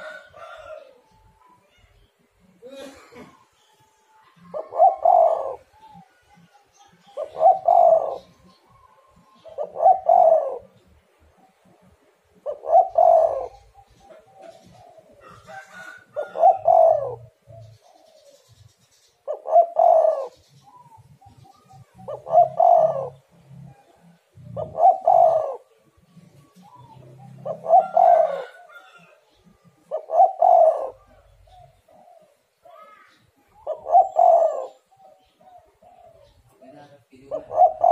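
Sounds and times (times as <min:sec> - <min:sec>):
dove cooing: 0:00.0 - 0:01.9, 0:04.2 - 0:36.6, 0:37.2 - 0:37.9.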